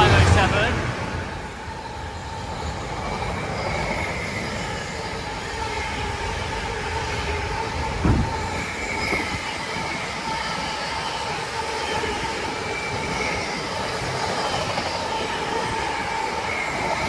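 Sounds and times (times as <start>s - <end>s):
freight train wheels rumbling: 0.0s - 17.0s
high ringing squeal: 0.0s - 17.0s
thump: 8.0s - 9.2s.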